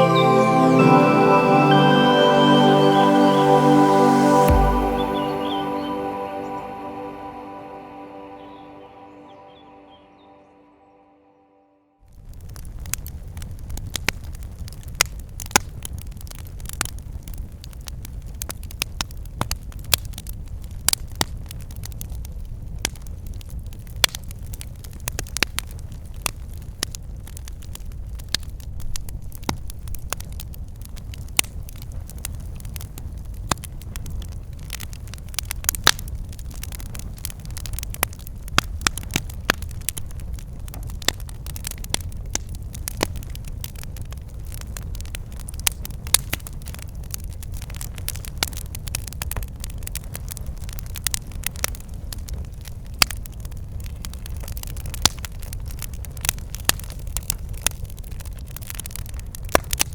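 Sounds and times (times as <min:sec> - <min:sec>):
firewood crackling and popping: 0:12.1 - 0:59.9
low rumble of flames: 0:12.1 - 0:59.9.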